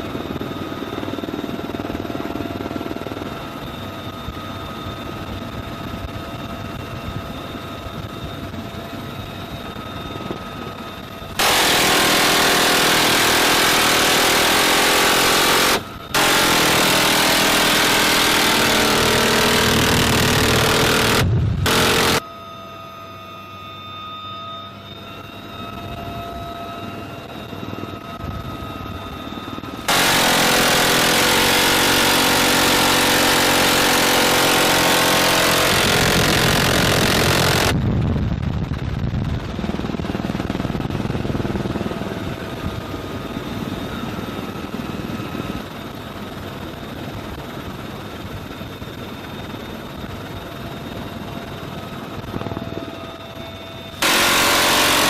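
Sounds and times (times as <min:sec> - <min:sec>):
helicopter turbine whine: 0:00.0 - 0:55.0
loud harsh roar: 0:54.0 - 0:55.0.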